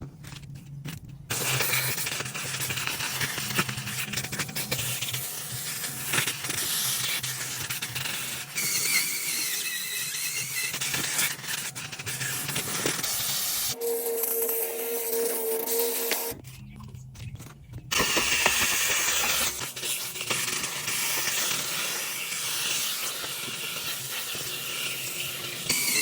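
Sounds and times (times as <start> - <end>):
machine whine: 25.7 - 26.0.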